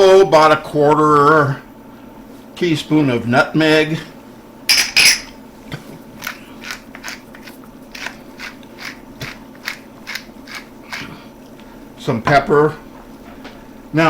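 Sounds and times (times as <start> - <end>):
pepper mill clatter: 4.7 - 5.3
pepper mill grinding: 4.7 - 5.3, 6.6 - 11.0.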